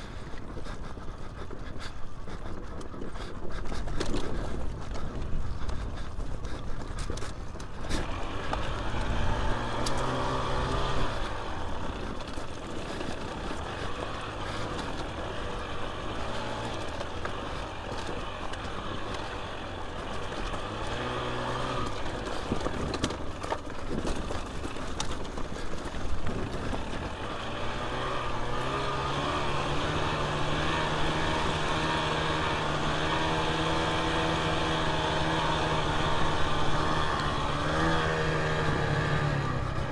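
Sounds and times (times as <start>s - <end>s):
dirt bike engine revving: 7.8s - 23.4s, 26.3s - 39.9s.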